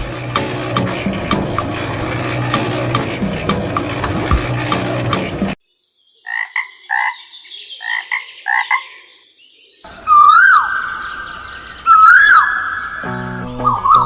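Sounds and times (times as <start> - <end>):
high electronic tone: 0.0 - 5.6
frog-like croaks: 6.2 - 7.2.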